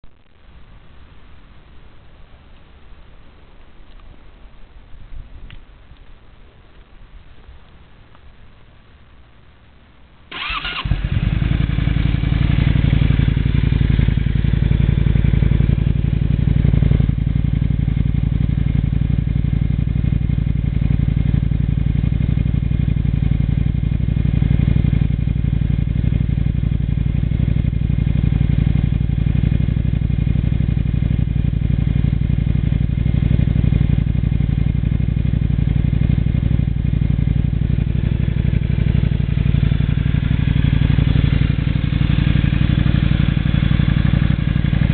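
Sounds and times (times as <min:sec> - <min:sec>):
motorcycle engine idling: 0:10.3 - 0:44.9.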